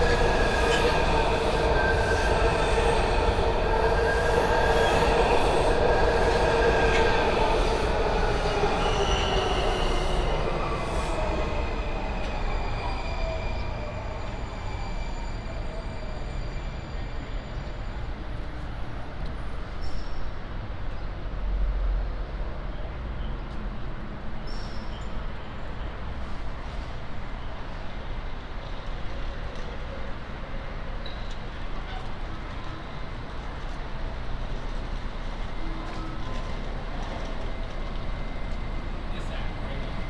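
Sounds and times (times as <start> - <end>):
train low rumble: 0.0 - 15.0
train whining tones: 0.0 - 18.9.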